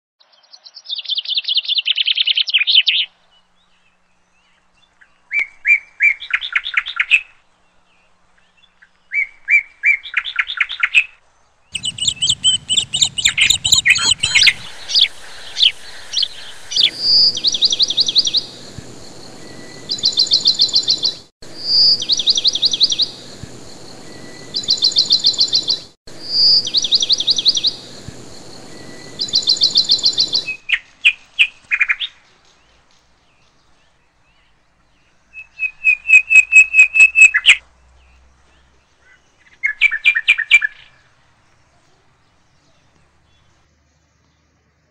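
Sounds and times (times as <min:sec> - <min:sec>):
steady hiss: 0:11.2 - 0:35.4
songbird trilling: 0:11.8 - 0:23.3, 0:24.0 - 0:32.2, 0:34.3 - 0:37.6.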